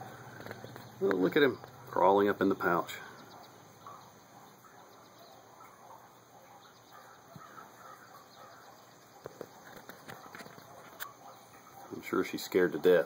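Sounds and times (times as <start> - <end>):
distant bird calls: 0.0 - 13.0.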